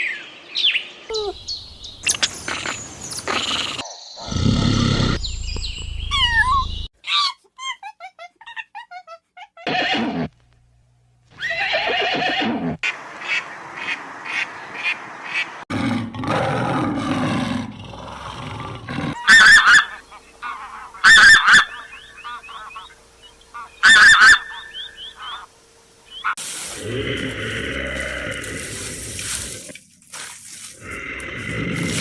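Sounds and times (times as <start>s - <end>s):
animal calls: 1.1s - 7.4s, 19.1s - 28.9s
loud short animal calls: 19.2s - 25.5s.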